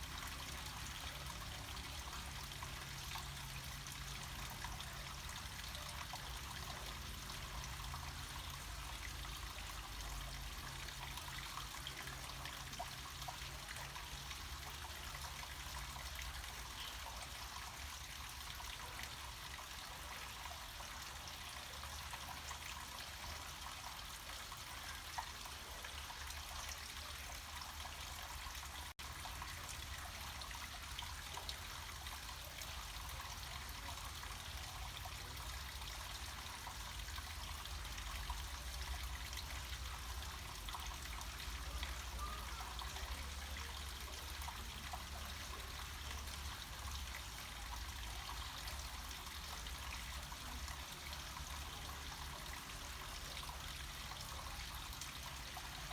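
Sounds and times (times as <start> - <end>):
stream trickling and splashing: 0.0 - 55.9.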